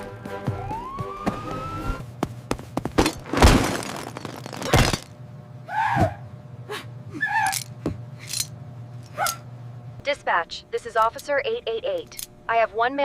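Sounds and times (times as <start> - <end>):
rising siren-like tone: 0.3 - 2.0.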